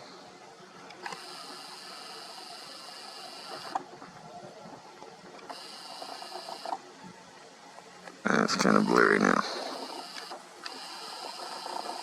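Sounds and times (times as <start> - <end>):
lens motor click: 0.9 - 1.9, 9.8 - 12.0
camera lens motor whirring: 0.9 - 3.9, 5.4 - 6.8, 8.8 - 12.0.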